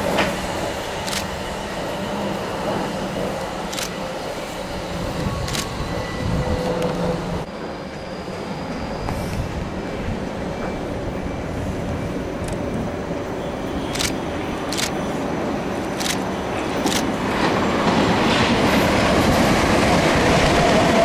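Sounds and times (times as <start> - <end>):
train rail rumble: 0.0 - 21.0
sharp clicks: 13.9 - 15.0.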